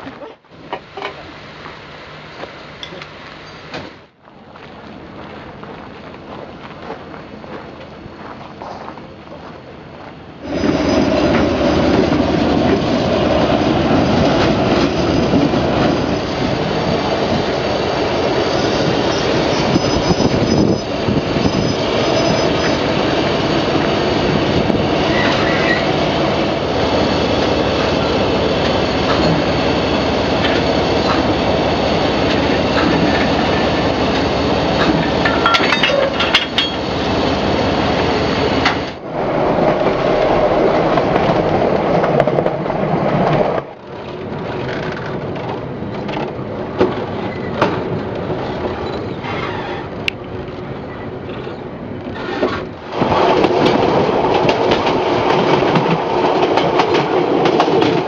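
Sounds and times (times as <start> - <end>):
train rumble: 0.0 - 58.0
high wheel squeals: 16.0 - 26.0, 48.8 - 50.0.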